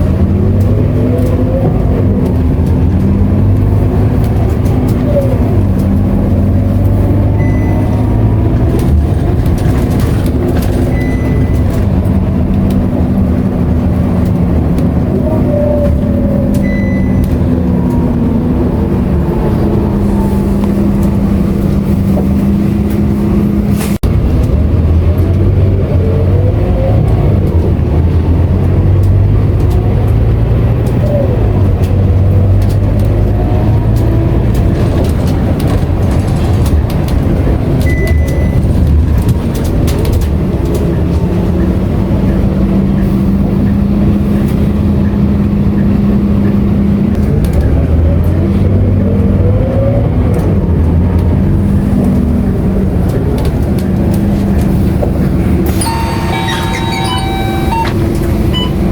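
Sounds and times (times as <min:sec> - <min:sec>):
bus diesel engine running: 0:00.0 - 0:58.9
short high beeps: 0:07.4 - 0:08.0, 0:55.7 - 0:58.9.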